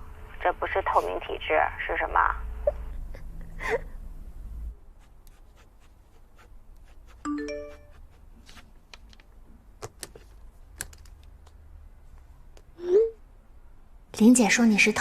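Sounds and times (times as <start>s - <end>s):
electronic chime: 7.3s - 8.0s.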